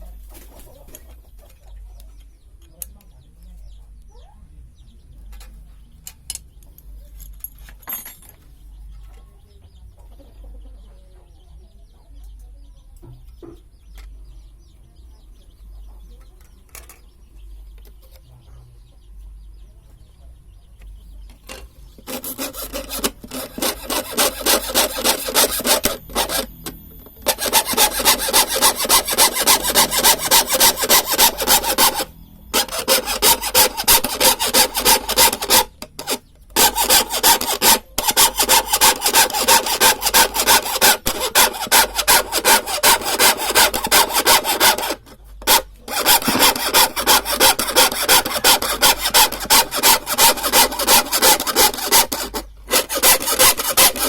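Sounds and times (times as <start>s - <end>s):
hand saw cutting wood: 21.5s - 54.0s.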